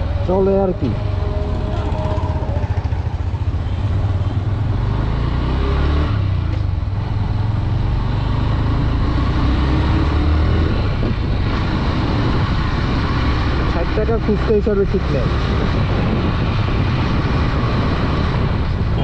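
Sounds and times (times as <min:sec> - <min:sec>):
motorcycle engine running: 0:00.0 - 0:05.5
road and wind noise: 0:00.0 - 0:19.0.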